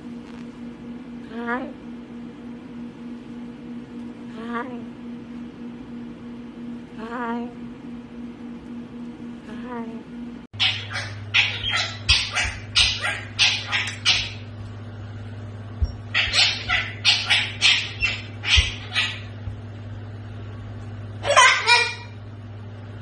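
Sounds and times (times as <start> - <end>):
small dog yipping: 10.6 - 14.4, 15.8 - 19.2, 21.2 - 22.1.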